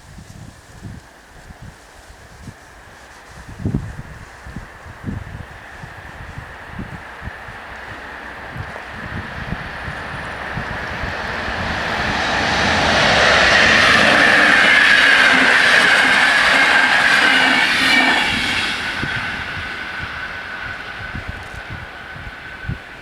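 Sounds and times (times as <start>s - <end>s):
train passing with wheel clatter: 0.7s - 23.0s
crossing warning tone: 7.8s - 22.8s.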